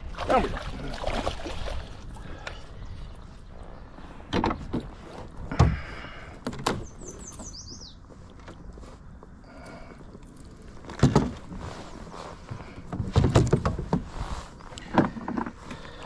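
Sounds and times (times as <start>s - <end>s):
knocks and thumps on kayak: 10.9s - 11.7s, 12.6s - 15.8s.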